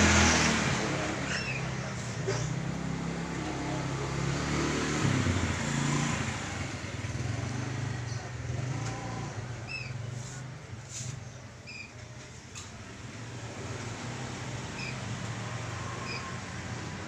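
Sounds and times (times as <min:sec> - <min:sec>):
motorcycle engine running: 0:05.1 - 0:11.1.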